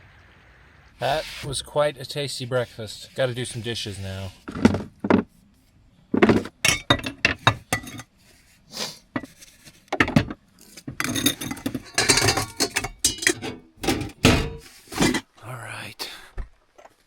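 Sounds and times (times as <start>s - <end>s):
dishes and cutlery clattering: 6.2s - 8.1s, 10.0s - 15.3s.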